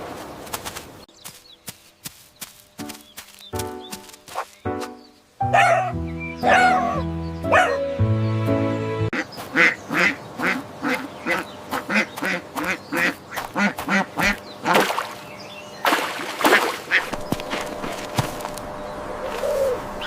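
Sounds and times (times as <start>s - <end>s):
duck quacking: 9.1s - 14.8s.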